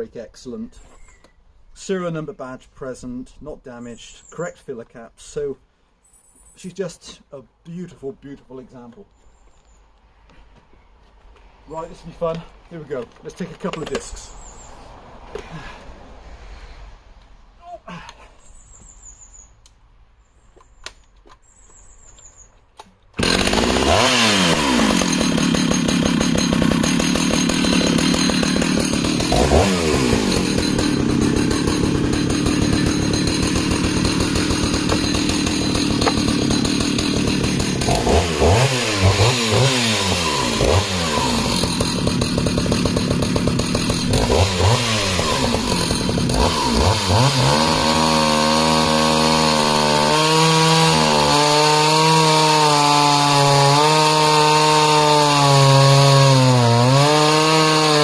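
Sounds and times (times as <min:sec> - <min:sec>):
chainsaw cutting log: 0:23.2 - 0:58.0.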